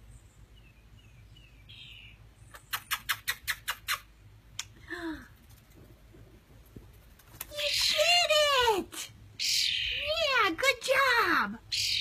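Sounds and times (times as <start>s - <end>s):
fledgling bird chirping: 0.0s - 4.3s, 9.4s - 10.3s, 11.6s - 12.0s.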